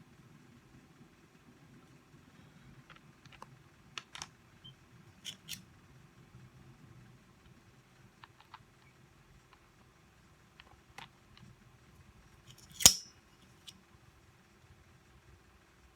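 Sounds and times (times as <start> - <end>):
small parts and tools clicking: 5.2 - 5.6, 12.4 - 13.7.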